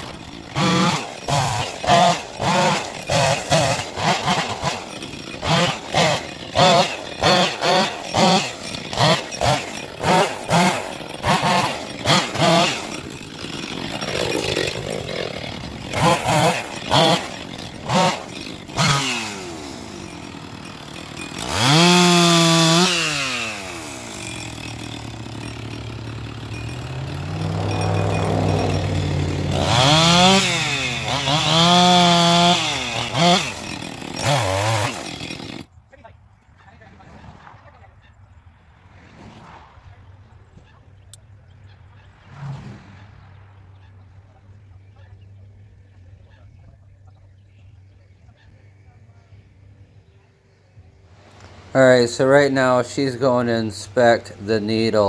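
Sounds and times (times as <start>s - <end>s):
chainsaw revving: 0.0s - 35.7s, 51.2s - 55.0s.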